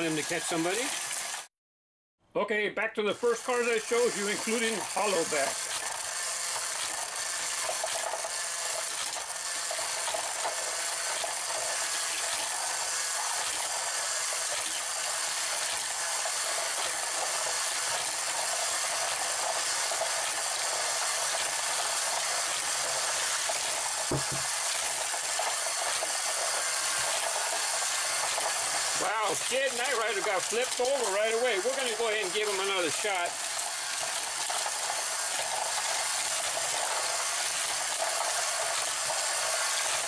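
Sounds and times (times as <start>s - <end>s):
toy cars rattling on plastic track: 3.3s - 40.0s
mechanical whir: 3.4s - 40.0s
short knock: 24.1s - 24.5s.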